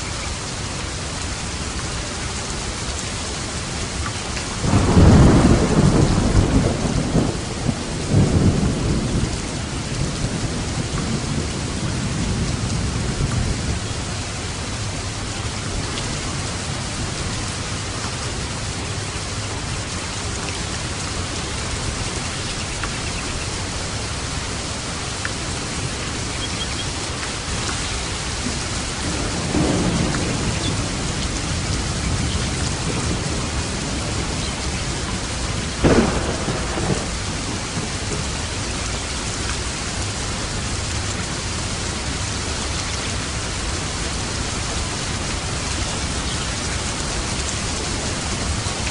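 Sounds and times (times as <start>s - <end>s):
heavy rain: 0.0s - 48.9s
loud thunderclap: 4.6s - 9.4s, 28.5s - 38.5s
thunder rumbling: 4.6s - 14.6s, 25.4s - 42.7s.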